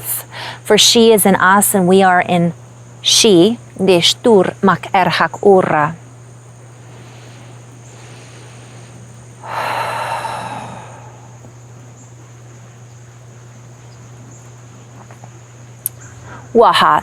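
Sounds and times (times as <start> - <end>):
crickets chirring: 0.0 - 17.0
low hum: 0.0 - 17.0
woman breathy exhale: 9.4 - 11.5.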